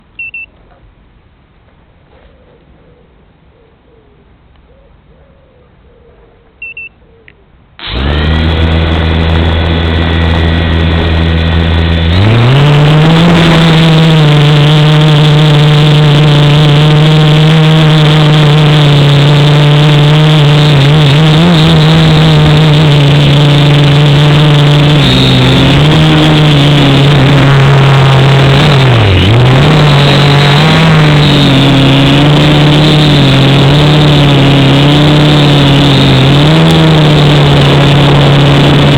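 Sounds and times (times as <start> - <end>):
short electronic beeps: 0.2 - 0.5, 6.6 - 7.0
drone motors buzzing: 7.8 - 38.9.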